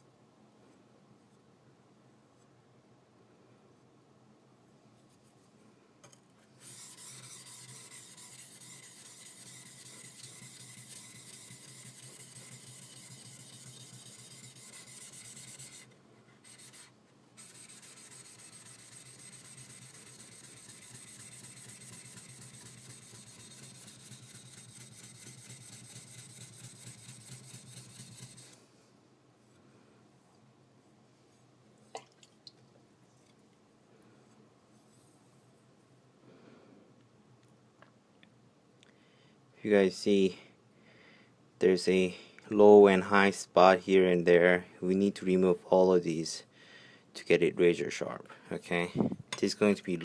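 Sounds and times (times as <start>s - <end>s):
knife scraping on whetstone: 6.6s - 28.6s.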